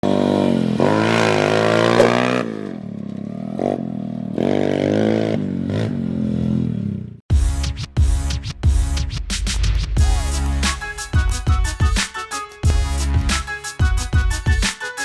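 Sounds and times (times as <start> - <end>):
pit bike engine revving: 0.0 - 7.2.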